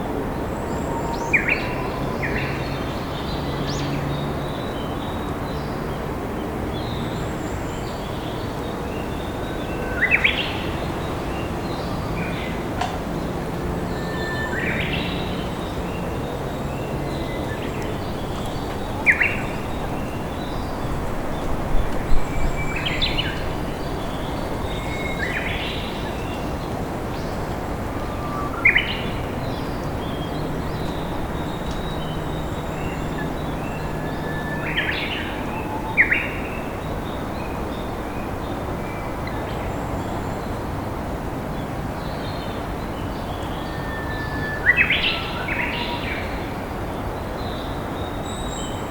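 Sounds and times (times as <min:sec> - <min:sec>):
river flowing: 0:06.1 - 0:48.2
birds chirping: 0:07.9 - 0:40.7.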